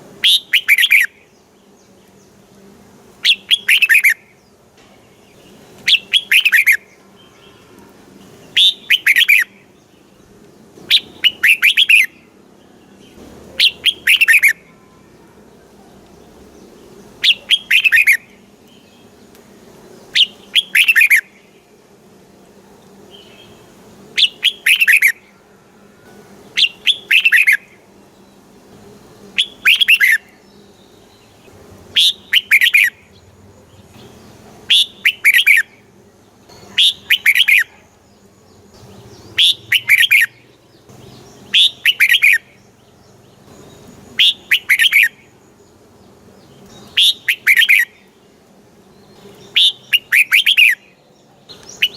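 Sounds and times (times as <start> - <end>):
bulbul singing whistled notes: 0.2 - 1.3, 3.2 - 4.4, 5.3 - 7.6, 8.4 - 9.8, 10.9 - 12.3, 13.0 - 14.9, 17.2 - 19.2, 20.1 - 21.6, 24.2 - 25.4, 26.5 - 27.8, 29.4 - 33.2, 34.0 - 35.8, 36.5 - 37.9, 38.5 - 45.4, 46.6 - 48.2, 48.9 - 51.9.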